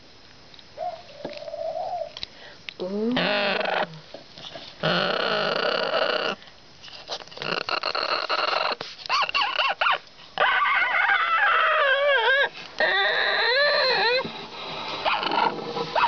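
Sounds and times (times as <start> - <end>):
parrot squawking and chattering: 3.2 - 4.0, 4.8 - 6.4, 7.1 - 16.0.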